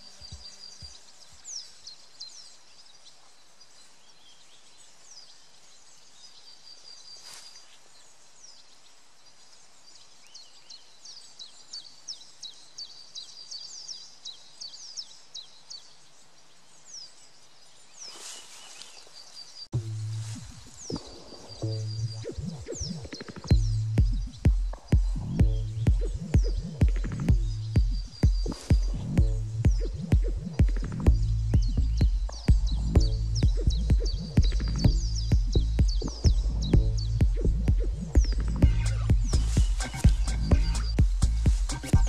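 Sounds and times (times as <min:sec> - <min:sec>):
faint steady hiss: 0:00.0 - 0:21.8
high falling bird calls: 0:00.0 - 0:42.0
small birds chirping and trilling: 0:00.0 - 0:42.0.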